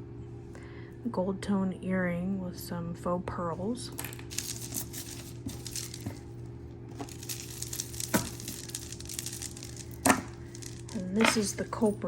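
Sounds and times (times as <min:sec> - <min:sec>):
steady low hum: 0:00.0 - 0:12.0
jewelry chains and beads clinking: 0:03.9 - 0:06.3, 0:06.9 - 0:12.0.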